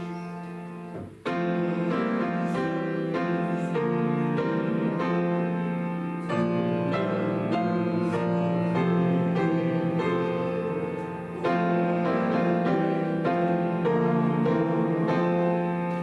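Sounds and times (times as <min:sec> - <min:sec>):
piano playing hymn chords: 0:00.0 - 0:16.0.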